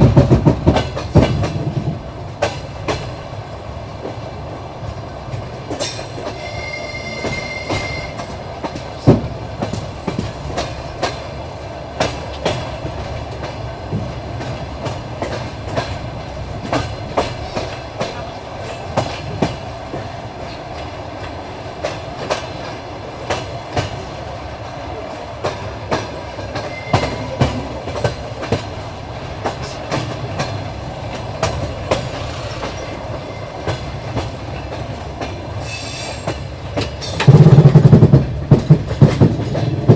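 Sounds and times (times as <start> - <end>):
train wheels clattering over rail joints: 0.0 - 39.9
high ringing tone: 6.4 - 8.4.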